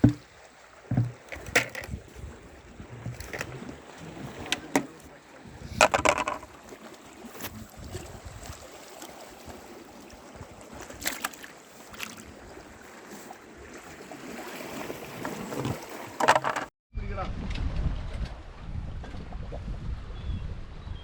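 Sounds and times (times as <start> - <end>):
wind on microphone: 0.9 - 6.7, 7.3 - 8.7, 17.0 - 21.0.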